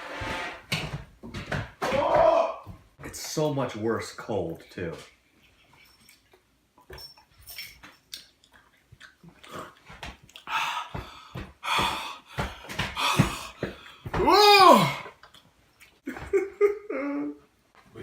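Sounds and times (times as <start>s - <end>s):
person wheezing and gasping: 10.4s - 15.1s
person groaning: 13.0s - 15.1s.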